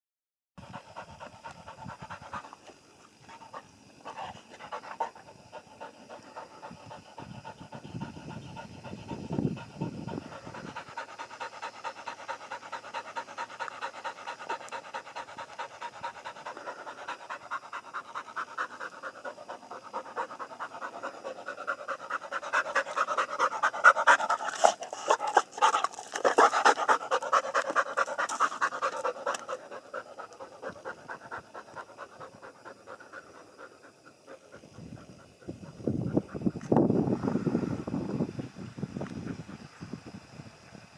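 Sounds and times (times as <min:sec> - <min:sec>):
pigs grunting and chewing: 0:13.0 - 0:32.0.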